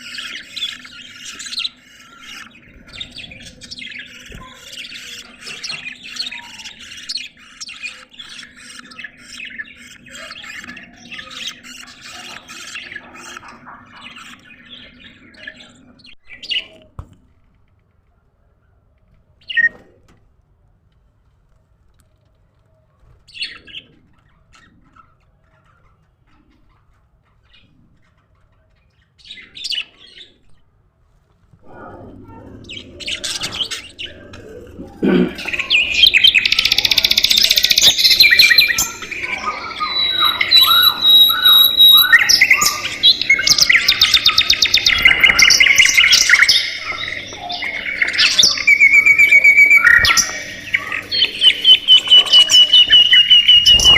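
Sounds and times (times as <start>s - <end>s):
flock of budgies chattering: 0.0s - 16.8s, 23.1s - 30.5s, 31.6s - 53.9s
budgerigar chirps: 32.8s - 53.9s.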